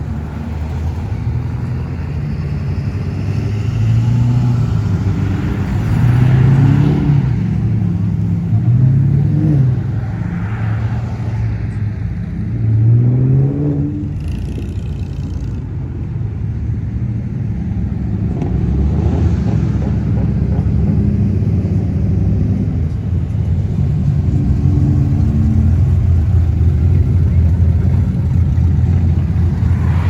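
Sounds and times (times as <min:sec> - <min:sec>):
car engines rumbling past: 0:00.0 - 0:30.0
deep low engine rumble: 0:00.0 - 0:30.0
engine revving: 0:18.2 - 0:30.0.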